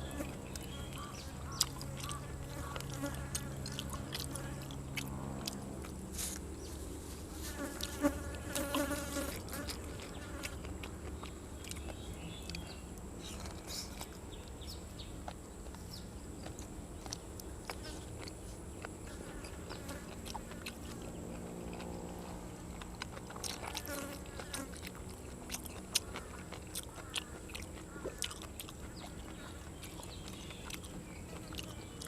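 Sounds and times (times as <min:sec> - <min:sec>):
flies buzzing: 0:00.0 - 0:10.7, 0:19.0 - 0:25.5
person chewing: 0:00.0 - 0:32.0.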